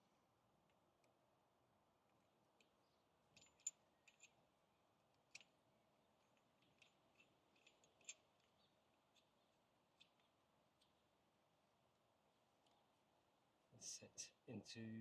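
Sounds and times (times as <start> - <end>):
small metal parts clicking: 2.1 - 4.5, 5.1 - 11.0.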